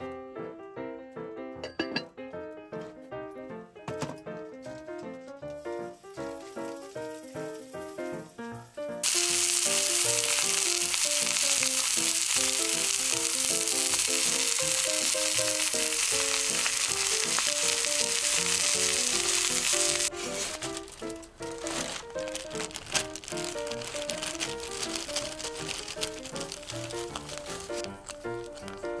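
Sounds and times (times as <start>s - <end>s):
light background music: 0.0s - 29.0s
food sizzling in a hot pan: 9.0s - 20.8s, 21.7s - 27.9s.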